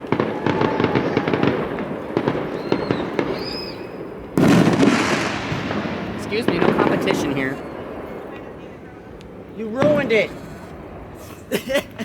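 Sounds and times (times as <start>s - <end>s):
loud firework shell burst: 0.0s - 8.4s
fireworks crackling pops: 0.0s - 11.5s.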